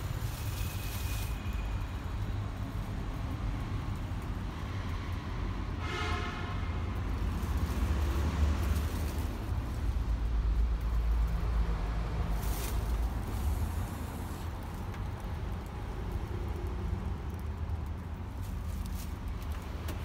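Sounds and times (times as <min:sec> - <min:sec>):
truck horn toot: 0:05.8 - 0:06.5.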